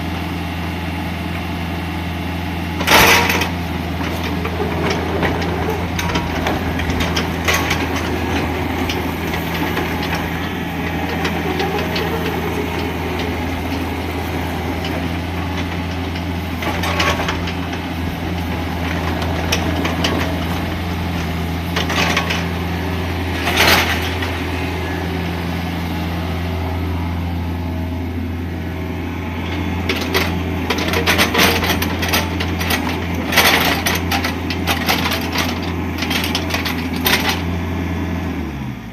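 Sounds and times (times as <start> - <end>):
excavator diesel engine running: 0.0 - 38.9
short knocks and clatters: 2.8 - 22.7, 29.5 - 37.5.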